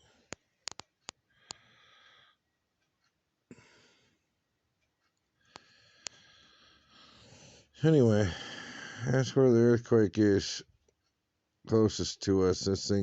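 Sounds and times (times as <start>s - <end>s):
faint breaths: 0.0s - 0.6s, 1.2s - 4.4s, 5.0s - 9.5s.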